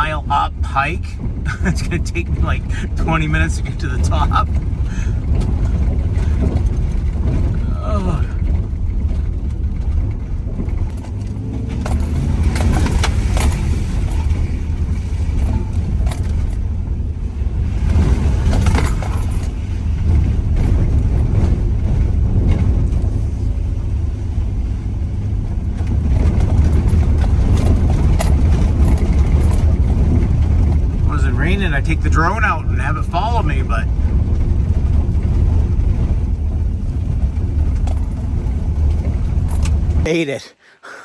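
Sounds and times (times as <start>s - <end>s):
van engine rumble: 0.0s - 40.1s
knocks and rattles over bumps: 1.2s - 31.1s, 33.9s - 40.0s.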